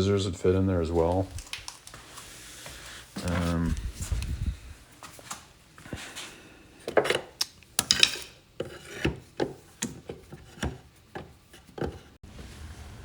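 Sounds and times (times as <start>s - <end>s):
tools scraping on wood: 6.8s - 12.2s
wood blocks knocking and clicking: 6.9s - 12.1s.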